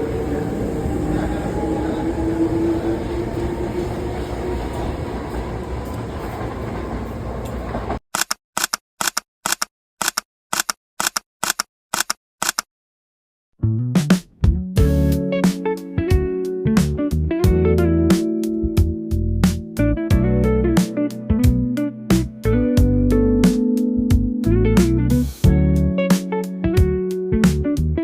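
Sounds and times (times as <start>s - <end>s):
train rumbling on track: 0.0s - 8.0s.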